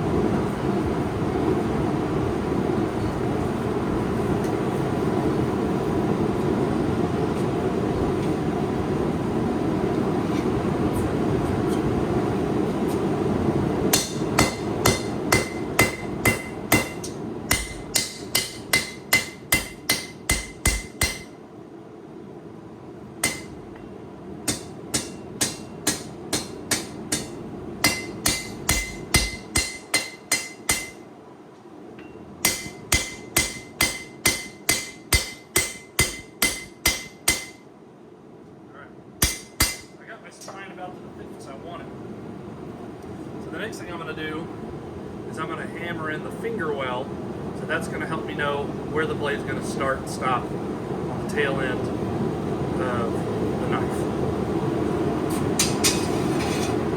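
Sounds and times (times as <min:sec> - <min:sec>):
hammer striking steel on anvil: 0:13.9 - 0:21.4, 0:23.2 - 0:31.1, 0:32.0 - 0:37.7, 0:39.2 - 0:40.6, 0:55.6 - 0:56.7.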